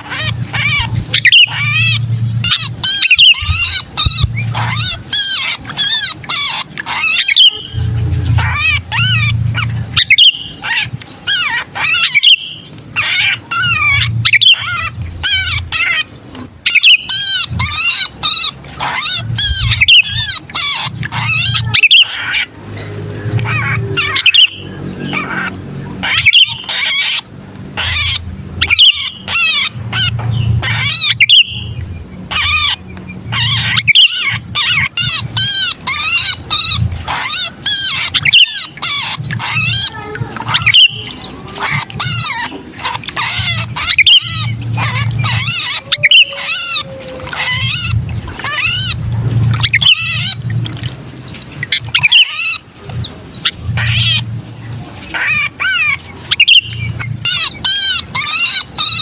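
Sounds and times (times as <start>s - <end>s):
low rumble: 0.0s - 5.5s, 6.9s - 11.9s, 13.3s - 17.9s
birds chirping and squawking: 0.0s - 59.0s.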